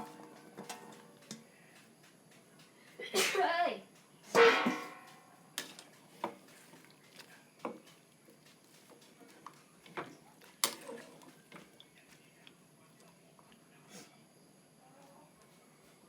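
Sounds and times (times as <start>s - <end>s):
utensils clicking on cookware: 0.0s - 1.5s.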